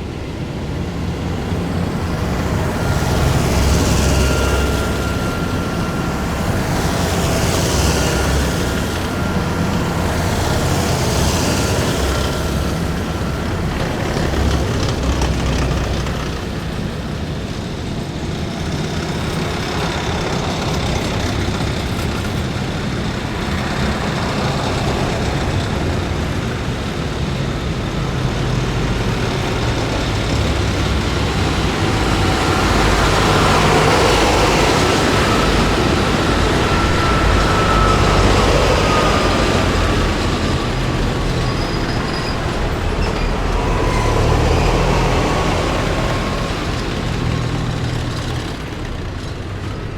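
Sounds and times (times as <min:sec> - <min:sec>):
steady high whine: 0:00.0 - 0:49.9
deep engine rumble: 0:28.9 - 0:49.9.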